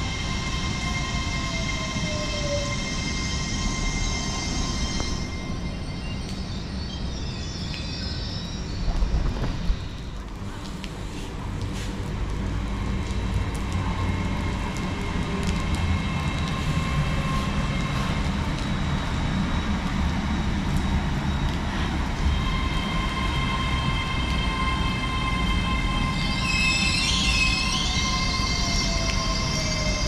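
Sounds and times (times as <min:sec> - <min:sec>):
high wavering squeal: 0:00.0 - 0:09.9, 0:22.3 - 0:30.0
train whine: 0:00.0 - 0:10.0, 0:13.9 - 0:30.0
train rumbling past platform: 0:00.0 - 0:30.0.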